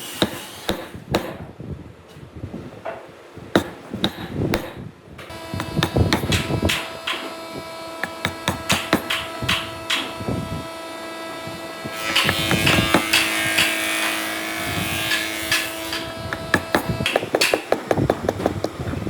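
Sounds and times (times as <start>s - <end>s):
steady hum: 0.0s - 19.0s
hand tools knocking wood: 3.6s - 10.9s, 11.6s - 19.0s
rasping stroke on wood: 5.3s - 18.9s.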